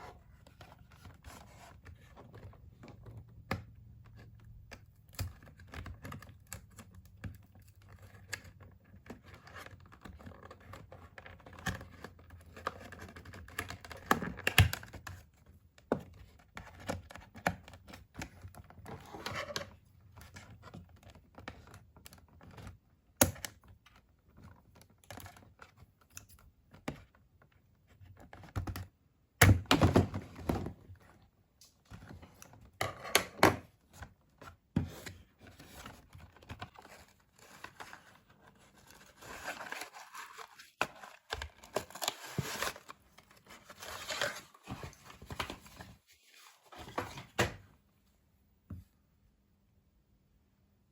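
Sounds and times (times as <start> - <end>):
packaging rustling and tearing: 35.5 - 47.3.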